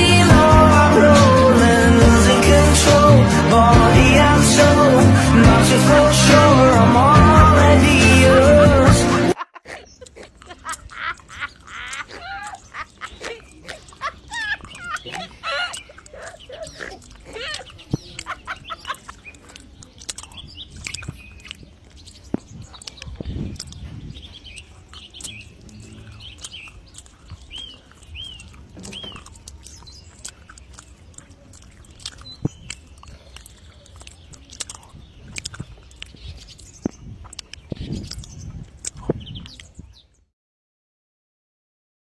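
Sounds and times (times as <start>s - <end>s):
bird chirping: 9.9s - 40.3s.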